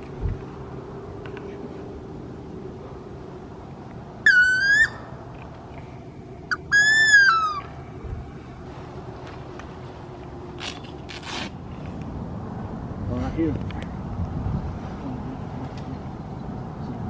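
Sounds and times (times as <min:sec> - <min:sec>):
wood duck squealing calls: 0:04.2 - 0:05.1, 0:06.5 - 0:07.8.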